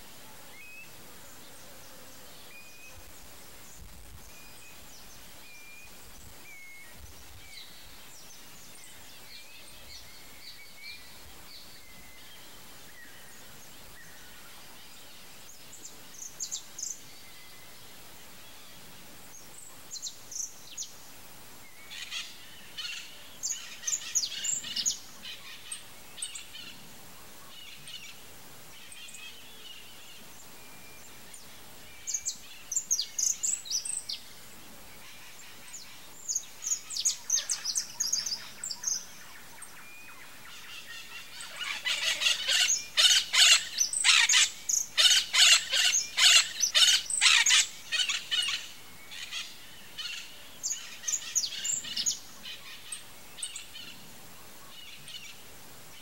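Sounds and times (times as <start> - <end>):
birds chirping and chattering: 40.5 - 54.1.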